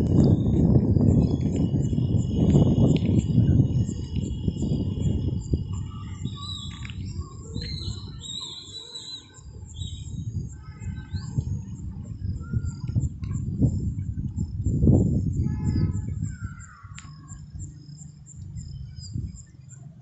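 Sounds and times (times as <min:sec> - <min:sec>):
low rumbling noise: 0:00.0 - 0:08.4
birds chirping and whistling: 0:00.0 - 0:19.9.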